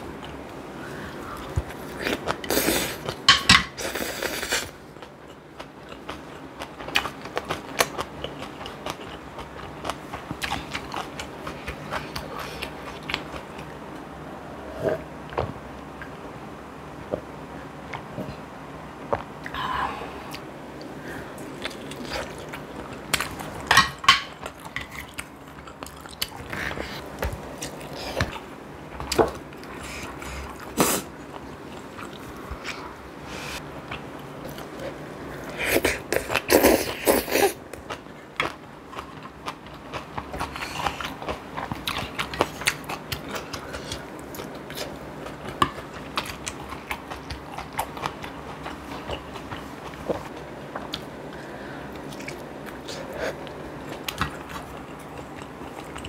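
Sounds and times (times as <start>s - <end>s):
chewing and biting food: 5.0s - 13.7s, 33.8s - 56.0s.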